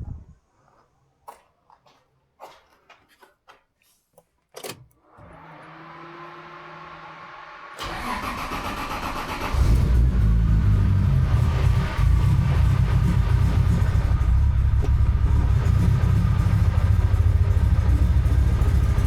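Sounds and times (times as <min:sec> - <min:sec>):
car engine cranking and firing: 0:04.6 - 0:19.0
loud deep engine running: 0:06.6 - 0:19.0.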